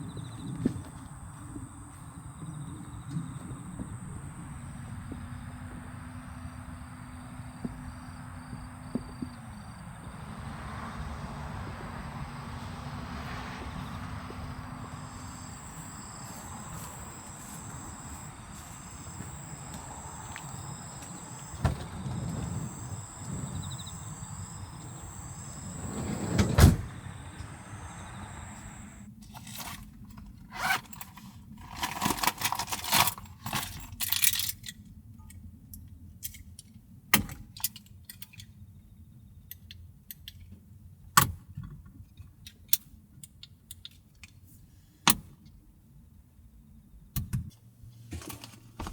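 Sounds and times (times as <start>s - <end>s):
steady background hiss: 14.3s - 29.0s
sliding van door closing with thud: 14.6s - 29.0s.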